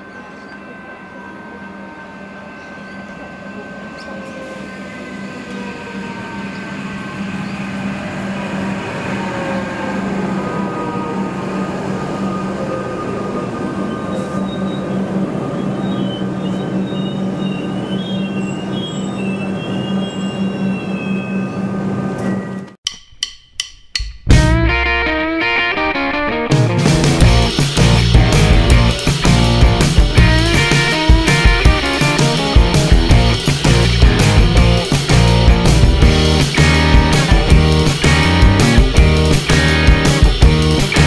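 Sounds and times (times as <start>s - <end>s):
train wheels squealing: 0.0s - 22.7s
electric train motor hum: 27.2s - 41.0s.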